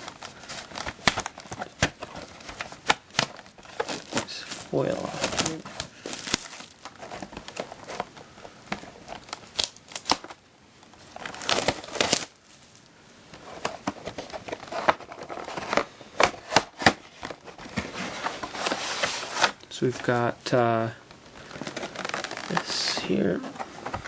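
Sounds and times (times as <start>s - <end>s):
plastic wrapping tearing and crinkling: 0.0s - 8.1s, 8.9s - 10.4s, 11.0s - 12.8s, 20.8s - 23.3s.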